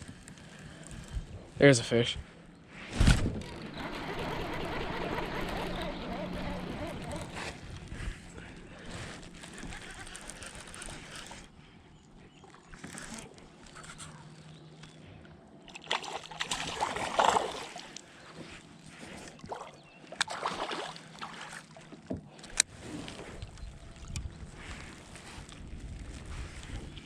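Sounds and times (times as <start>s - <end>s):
water splashing against kayak: 15.7s - 18.0s, 20.2s - 23.0s.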